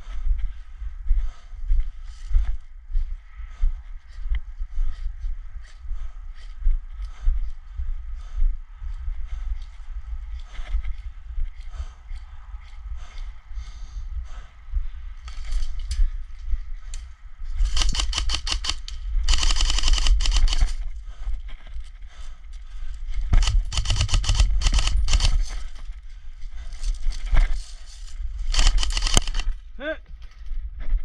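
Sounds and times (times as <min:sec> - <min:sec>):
wind rumble on microphone: 0:00.0 - 0:31.0
airsoft gun firing bursts: 0:17.6 - 0:20.8, 0:23.4 - 0:25.5, 0:28.5 - 0:29.5.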